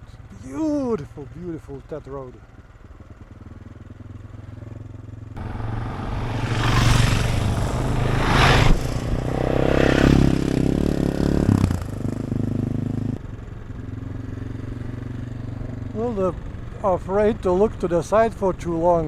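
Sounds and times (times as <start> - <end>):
motorcycle engine running: 0.0 - 19.0
rushing wind noise: 5.4 - 11.9.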